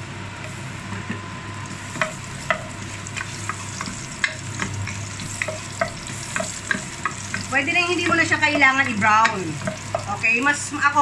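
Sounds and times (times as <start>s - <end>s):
ginger sizzling in hot oil: 1.5s - 11.0s
wooden spatula tapping pot: 1.9s - 10.2s.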